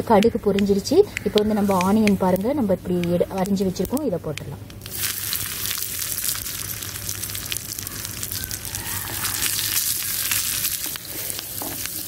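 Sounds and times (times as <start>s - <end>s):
crackles and pops: 0.0s - 12.0s
onions sizzling in hot oil: 4.8s - 12.0s.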